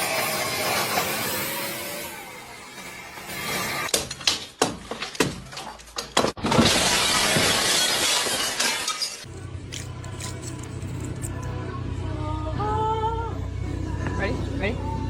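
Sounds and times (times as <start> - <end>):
ice crashing and tinkling: 6.6 - 9.3.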